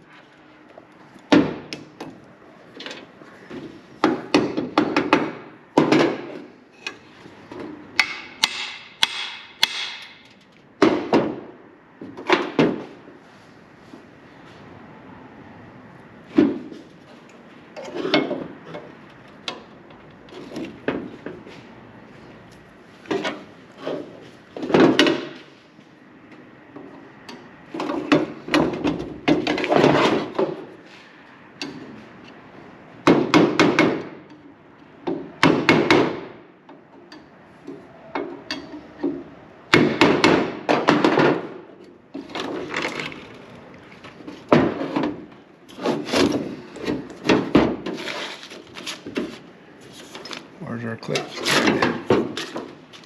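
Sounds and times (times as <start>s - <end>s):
hammer strikes: 8.0s - 11.4s.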